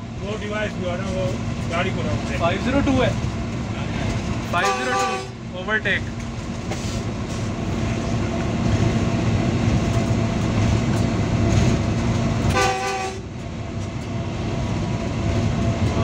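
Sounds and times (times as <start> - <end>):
locomotive engine drone: 0.0 - 16.0
wheels rumbling on rails: 0.0 - 16.0
multi-tone horn blast: 4.6 - 5.4, 12.5 - 13.3.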